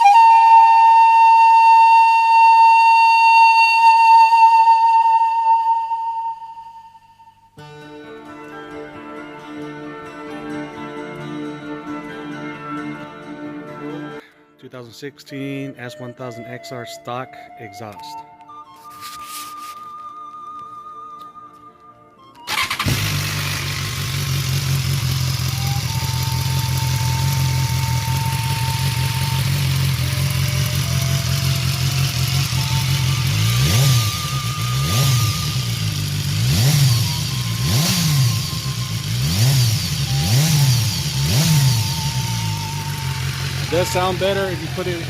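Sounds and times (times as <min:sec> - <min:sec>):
motorcycle engine starting: 0:22.4 - 0:45.0
motorcycle engine idling: 0:22.5 - 0:45.0.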